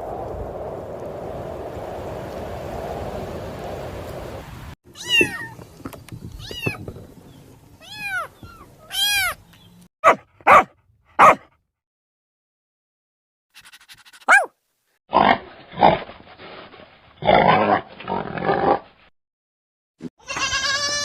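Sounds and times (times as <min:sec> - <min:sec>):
steady rushing noise: 0:00.0 - 0:04.8
cat meowing: 0:04.9 - 0:05.6, 0:06.4 - 0:06.8, 0:07.8 - 0:09.4, 0:20.2 - 0:21.0.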